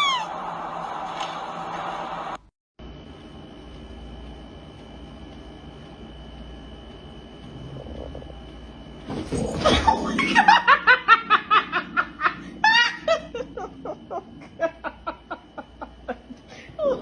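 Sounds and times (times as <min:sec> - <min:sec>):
high-pitched laughter: 0:09.6 - 0:17.0.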